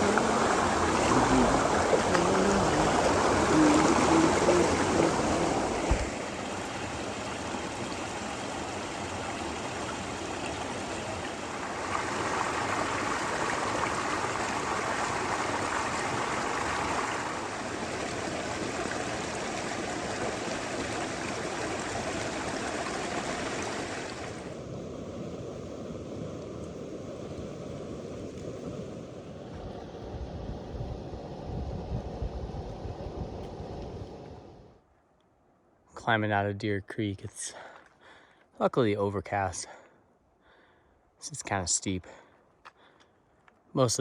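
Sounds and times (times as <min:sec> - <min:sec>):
creek water rushing over rocks: 0:00.0 - 0:24.7.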